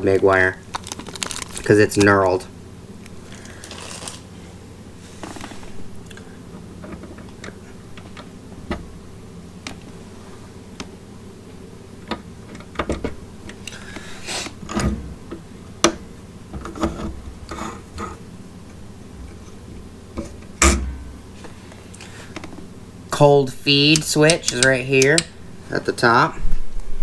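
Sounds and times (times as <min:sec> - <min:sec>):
faint low hum: 0:00.0 - 0:27.0
clicks and small knocks: 0:23.9 - 0:25.3.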